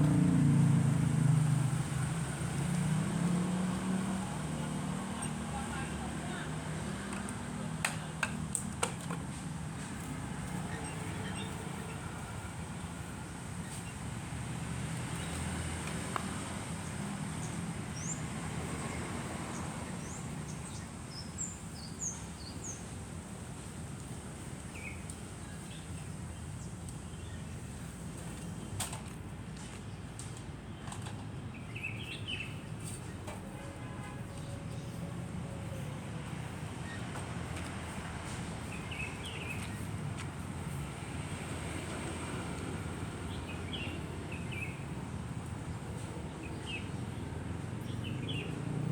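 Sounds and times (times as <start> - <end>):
small birds chirping: 16.8 - 23.0, 31.5 - 33.2, 38.6 - 40.8, 42.3 - 48.7.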